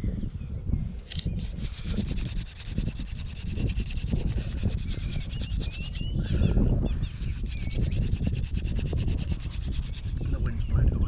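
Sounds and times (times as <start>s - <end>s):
wood-on-wood rubbing: 1.4s - 6.1s, 7.2s - 10.4s.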